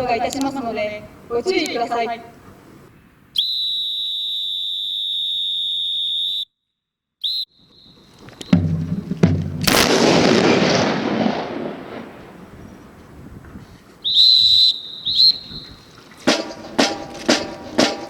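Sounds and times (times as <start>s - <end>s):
long whistle blast: 3.4s - 6.6s, 7.2s - 8.7s, 14.0s - 15.9s
short whistle toot: 3.4s - 6.6s, 7.2s - 8.7s, 14.0s - 15.9s
loud gun salute blast: 8.4s - 13.0s
thuds: 8.5s - 9.7s.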